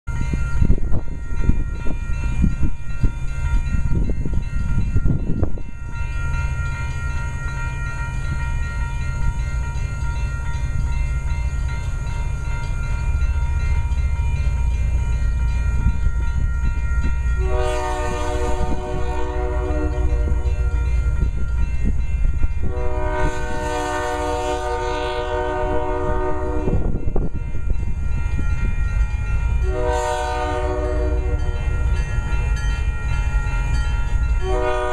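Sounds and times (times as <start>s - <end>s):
diesel locomotives rumbling: 0.1s - 34.9s
multi-chime air horn: 17.3s - 21.0s, 22.6s - 27.0s, 29.6s - 32.4s, 33.5s - 34.9s.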